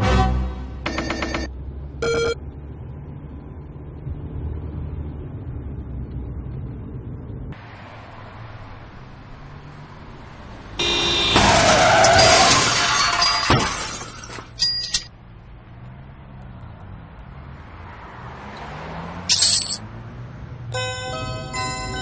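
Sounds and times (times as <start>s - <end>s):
low engine hum: 0.0s - 11.3s, 15.1s - 22.0s
car crash metal and glass: 11.0s - 15.1s.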